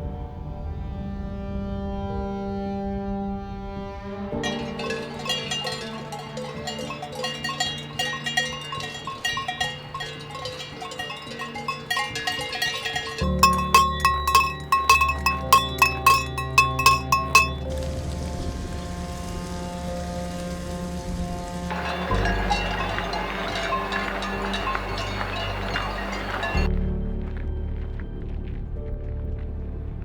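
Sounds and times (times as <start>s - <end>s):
cowbells clanking: 4.4s - 17.7s, 21.7s - 26.7s.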